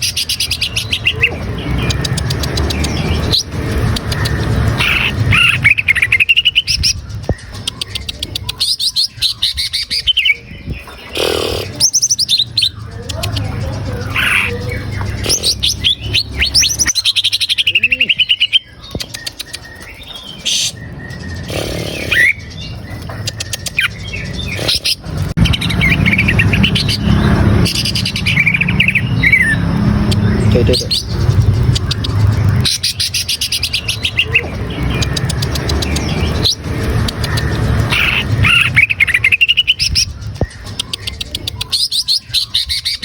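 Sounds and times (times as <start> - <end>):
bird singing loudly: 11.1 - 31.7.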